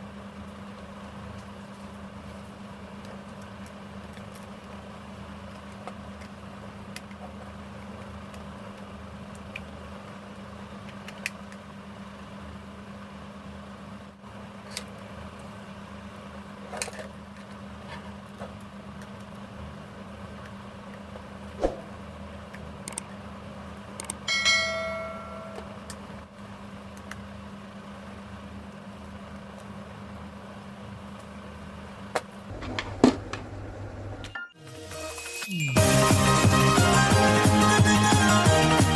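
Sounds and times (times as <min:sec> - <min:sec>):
steady low hum: 0:18.7 - 0:34.3.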